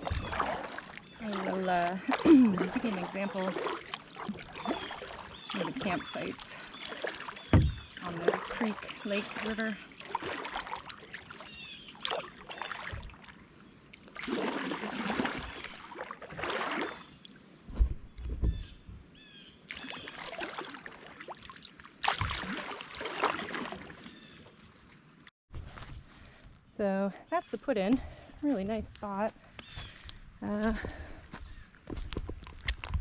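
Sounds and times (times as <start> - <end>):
paddle swishing through water: 0.0 - 18.7, 19.7 - 25.0
low thump: 7.5 - 7.9, 17.7 - 19.0.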